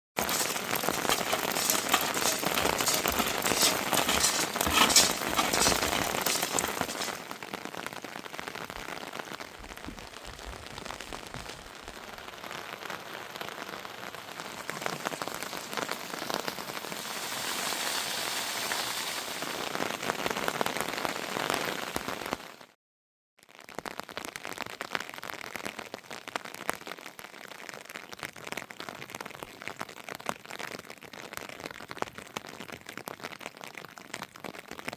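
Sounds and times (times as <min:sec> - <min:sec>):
heavy rain falling: 0:00.2 - 0:09.4, 0:10.2 - 0:22.6.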